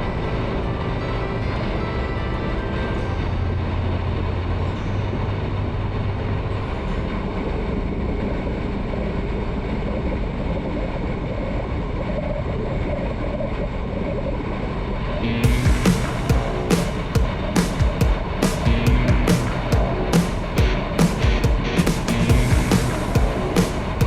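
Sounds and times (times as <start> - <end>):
motorcycle engine drone: 0.0 - 24.0
road noise: 15.2 - 24.0.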